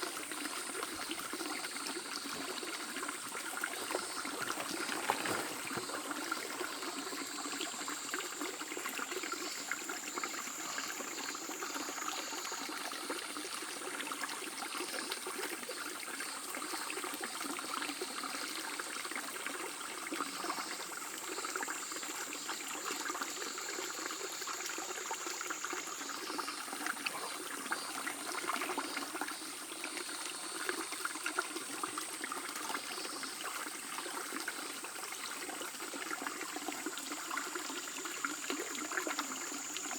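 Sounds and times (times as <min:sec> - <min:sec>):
river babbling over stones: 0:02.0 - 0:12.0.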